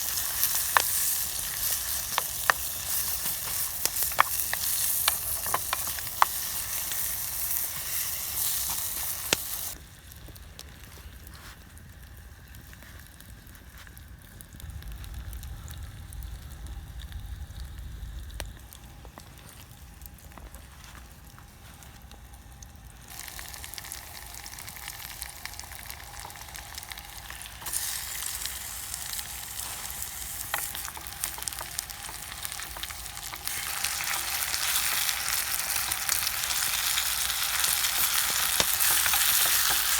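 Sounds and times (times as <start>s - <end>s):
food sizzling in a tin: 0.0s - 9.8s, 23.1s - 39.9s.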